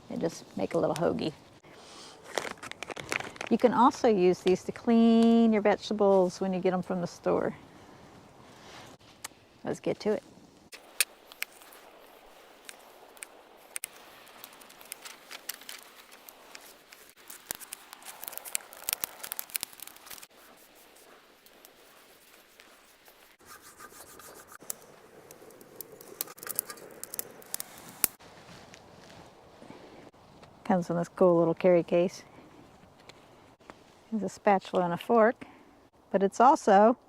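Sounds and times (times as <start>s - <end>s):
hands handling cooking gear: 10.8s - 29.2s.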